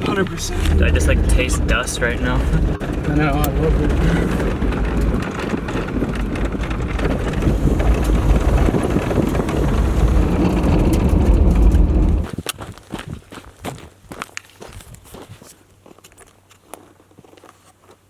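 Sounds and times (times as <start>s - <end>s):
engine and tyre rumble: 0.0s - 12.4s
wind noise: 0.0s - 13.8s.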